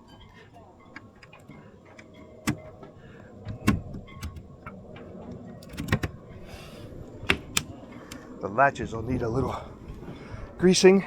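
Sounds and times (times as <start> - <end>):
boat hatch latches clicking: 0.0 - 8.3.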